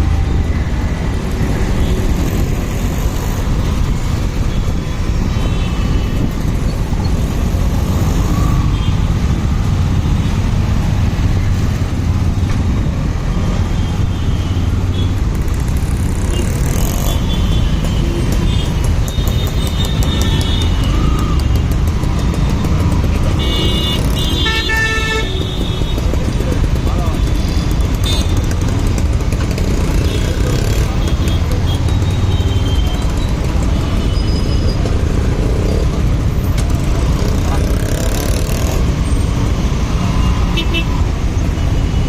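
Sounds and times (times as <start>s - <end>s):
motorcycle engine and road rumble: 0.0s - 42.0s
vehicle horns tooting: 23.3s - 26.1s, 27.3s - 28.5s.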